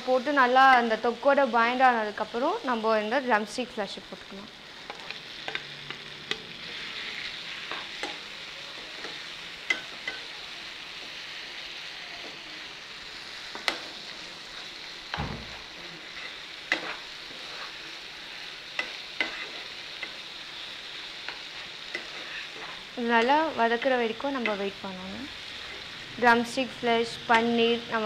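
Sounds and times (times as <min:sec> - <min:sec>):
food sizzling in a pan: 0:00.0 - 0:28.0
spatula clicking on a pan: 0:07.7 - 0:08.2, 0:09.0 - 0:10.3.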